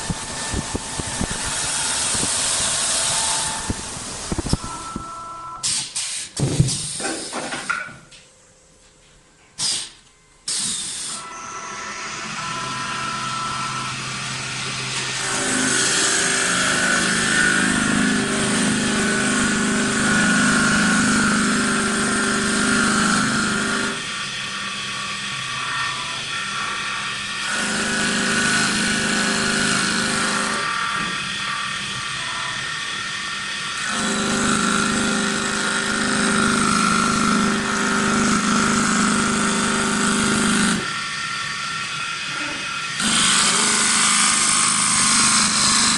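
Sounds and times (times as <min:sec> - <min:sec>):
high whirring hiss of cutting: 0:00.0 - 0:04.5
lathe motor hum: 0:11.2 - 0:45.9.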